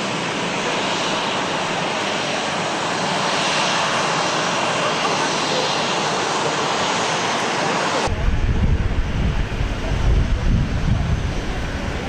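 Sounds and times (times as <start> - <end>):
airliner engine hiss: 0.0 - 12.0
wind buffeting microphone: 8.0 - 12.0.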